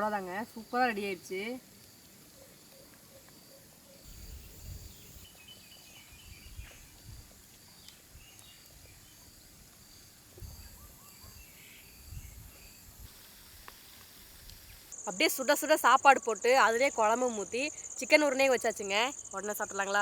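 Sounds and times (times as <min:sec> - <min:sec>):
insect chirping rhythmically: 0:00.0 - 0:20.0
faint bird calls: 0:02.3 - 0:07.0, 0:10.4 - 0:12.2.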